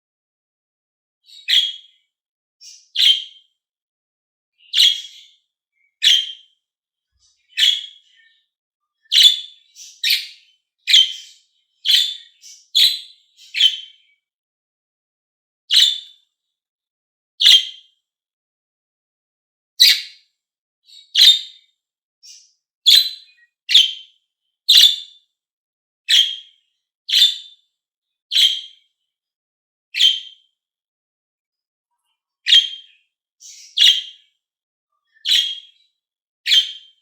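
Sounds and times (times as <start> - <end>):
parrots chirping: 1.3 - 1.9, 2.6 - 3.3, 4.7 - 5.3, 6.0 - 6.4, 7.4 - 8.1, 9.1 - 13.9, 15.7 - 16.1, 17.4 - 17.7, 19.8 - 20.1, 21.2 - 21.5, 22.2 - 24.0, 24.7 - 25.0, 26.1 - 26.4, 27.1 - 27.4, 28.3 - 28.7, 30.0 - 30.3, 32.5 - 34.1, 35.2 - 35.7, 36.5 - 36.8.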